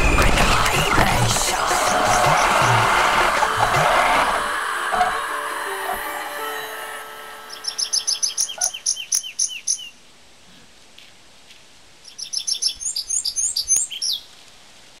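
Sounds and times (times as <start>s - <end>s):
songbird chirping rapidly: 7.5s - 10.0s, 12.0s - 14.3s.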